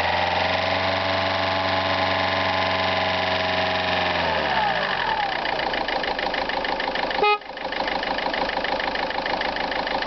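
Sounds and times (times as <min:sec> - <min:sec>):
diesel engine idling: 0:00.0 - 0:10.0
short loud beep: 0:07.2 - 0:07.5.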